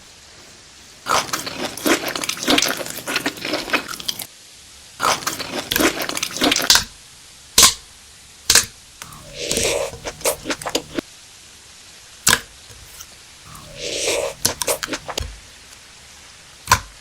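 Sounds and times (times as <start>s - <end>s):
chewing crunchy food: 1.1s - 4.3s, 5.0s - 6.9s, 9.0s - 11.0s, 12.7s - 15.3s
mouth sound: 1.1s - 4.3s, 9.0s - 11.0s, 12.7s - 15.3s.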